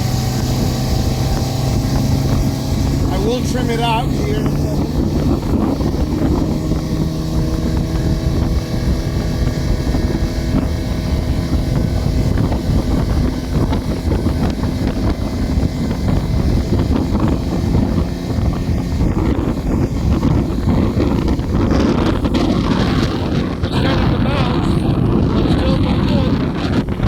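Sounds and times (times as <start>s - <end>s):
outboard motor running: 0.0s - 27.0s
wind rushing over microphone: 0.0s - 27.0s.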